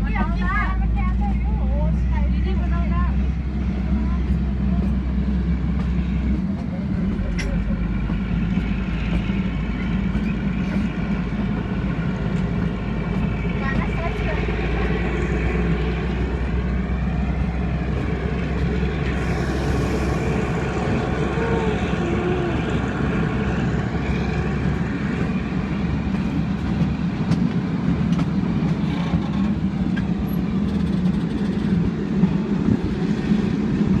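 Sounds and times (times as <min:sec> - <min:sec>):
vehicle running rumble: 0:00.0 - 0:34.0.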